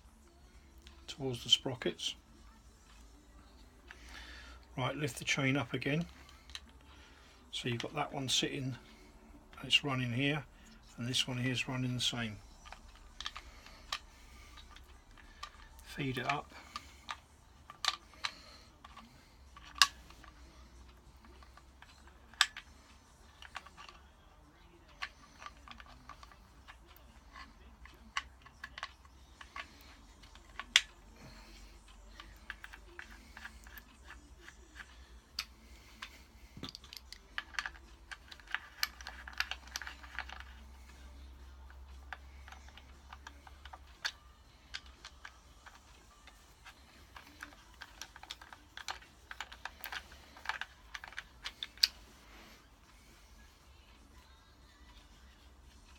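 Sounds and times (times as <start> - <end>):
metal parts clicking and tapping: 10.6 - 24.0, 24.9 - 31.4, 32.1 - 52.1.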